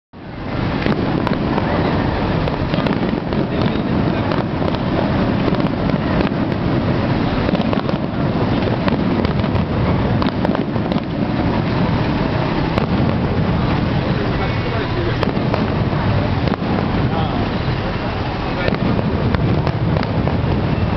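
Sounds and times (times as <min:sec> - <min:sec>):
fireworks bursting: 0:00.2 - 0:20.9
fireworks crackling: 0:00.2 - 0:20.9.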